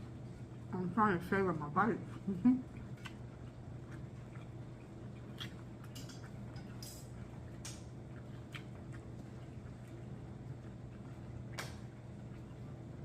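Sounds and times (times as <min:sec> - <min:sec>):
low steady hum: 0:00.0 - 0:13.0
mouth clicks and wet smacks chewing: 0:02.6 - 0:12.9.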